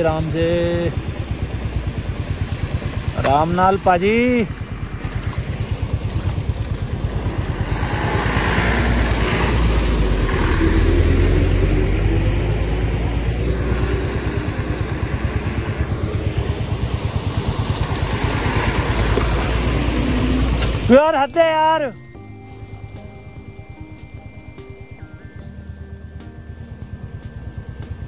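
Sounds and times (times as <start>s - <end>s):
motorcycle engine thumping: 0.9s - 8.6s.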